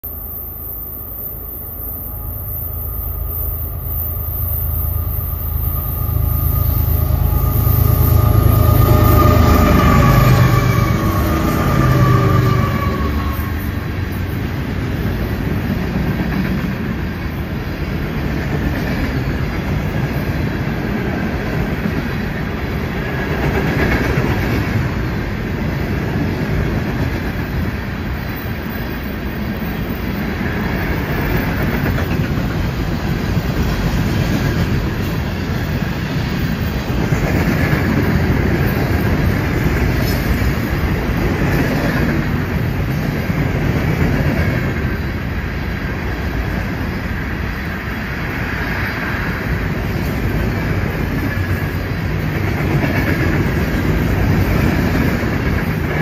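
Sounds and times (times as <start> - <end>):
falling pitch whine: 0.0 - 14.2
diesel locomotive rumble: 0.0 - 56.0
freight cars clickety-clack: 6.4 - 56.0.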